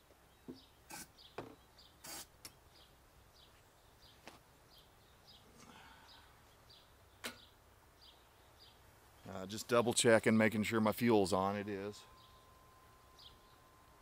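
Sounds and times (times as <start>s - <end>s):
bird chirping: 0.1s - 14.0s
brief hiss: 2.0s - 2.4s.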